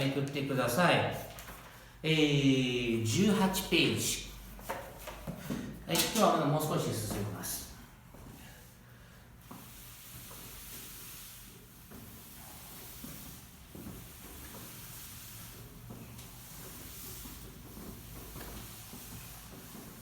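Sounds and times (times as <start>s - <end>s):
recording hiss: 0.0s - 20.0s
faint soft rustles: 4.3s - 20.0s.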